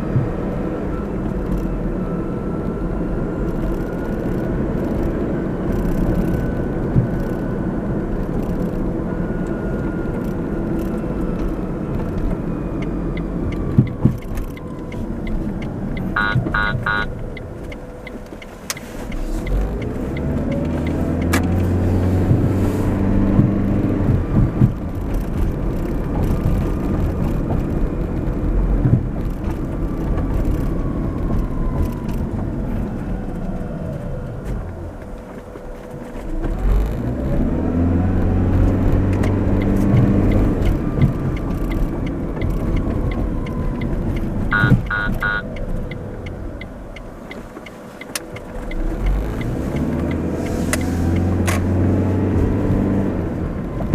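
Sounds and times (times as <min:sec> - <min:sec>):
car engine and tyre noise: 0:00.0 - 0:53.9
vehicles passing: 0:00.0 - 0:53.9
quick short beeps: 0:16.2 - 0:17.1, 0:44.5 - 0:45.5
heavy engine hum passing: 0:29.6 - 0:53.9.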